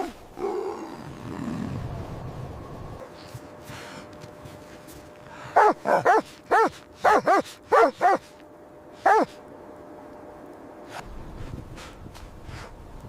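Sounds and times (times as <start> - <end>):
dog barking: 5.6 - 8.3, 9.0 - 9.4.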